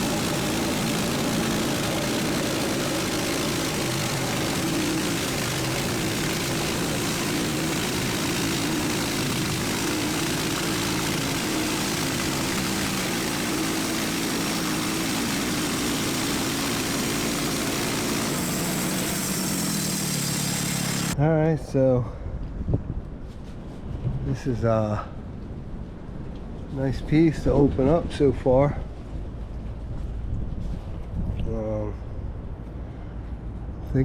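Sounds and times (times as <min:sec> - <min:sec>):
saw blade cutting log: 0:00.0 - 0:21.2
small gas engine running: 0:00.0 - 0:21.2.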